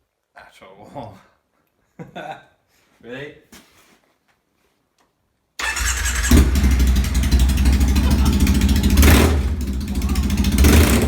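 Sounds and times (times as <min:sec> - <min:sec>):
motorcycle engine running loud: 0:06.2 - 0:11.0.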